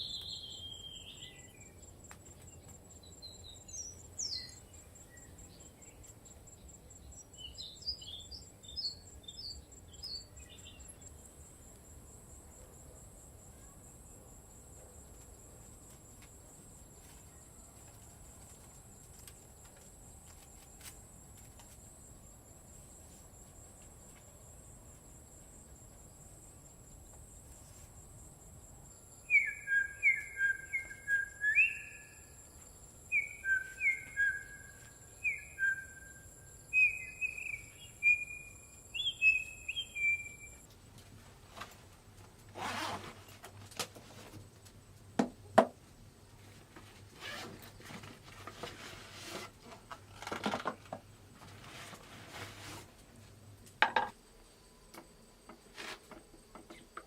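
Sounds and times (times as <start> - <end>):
bird chirps: 0.0 - 1.9, 2.6 - 11.2, 29.2 - 32.4, 33.0 - 40.6.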